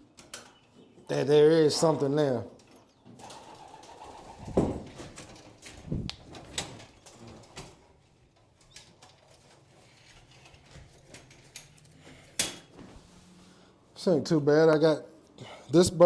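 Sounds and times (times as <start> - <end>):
pigeons cooing: 3.2 - 4.9.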